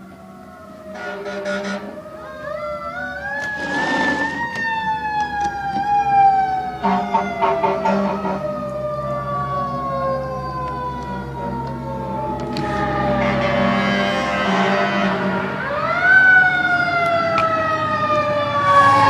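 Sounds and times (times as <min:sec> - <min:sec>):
fire truck siren wailing: 0:00.0 - 0:19.0.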